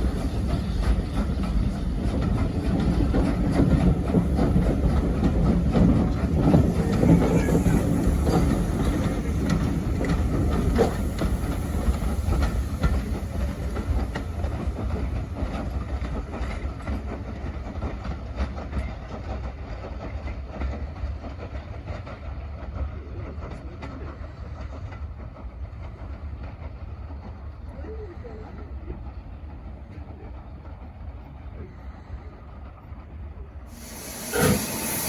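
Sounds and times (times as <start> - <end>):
wheels clicking over rail joints: 0.0 - 27.4
train rumbling on track: 0.0 - 35.0.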